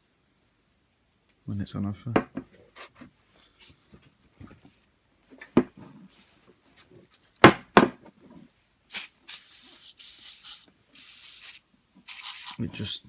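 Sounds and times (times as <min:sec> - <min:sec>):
aerosol can spraying: 0:08.9 - 0:12.7.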